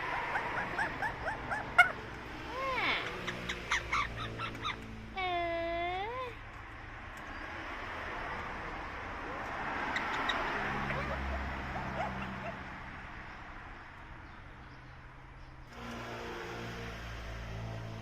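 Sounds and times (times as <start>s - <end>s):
parrot calling: 0.0s - 4.9s, 9.8s - 12.8s.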